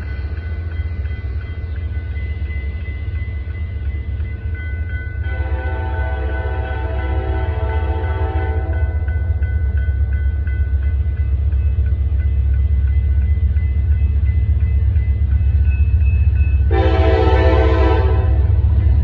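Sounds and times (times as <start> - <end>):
faint crossing bell ringing: 0.0 - 17.7
diesel locomotive rumble: 0.0 - 19.0
locomotive air horn blasting: 5.3 - 8.8, 16.7 - 18.6.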